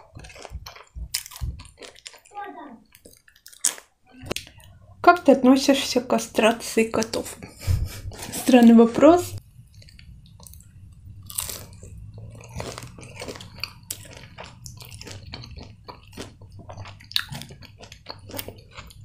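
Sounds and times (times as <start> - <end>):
person chewing crispy food: 0.0 - 4.8, 9.6 - 19.0.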